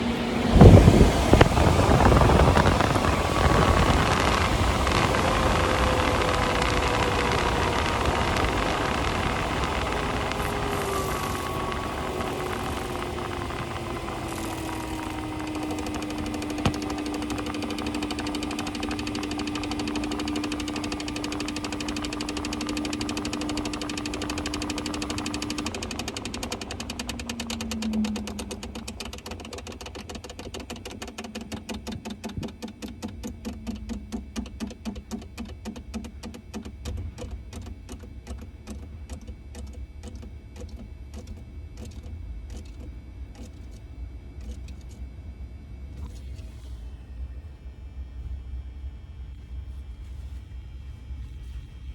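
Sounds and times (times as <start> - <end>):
cooling fan hum: 0.0 - 51.9
sharp click: 6.6 - 45.1
knocking in fan: 14.2 - 40.3.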